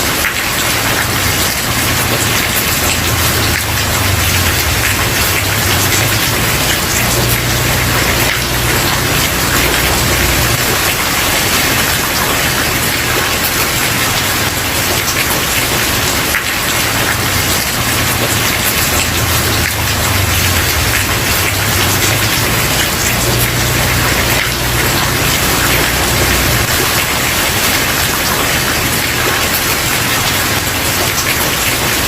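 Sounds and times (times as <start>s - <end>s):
rain on a wooden porch: 0.0s - 32.0s.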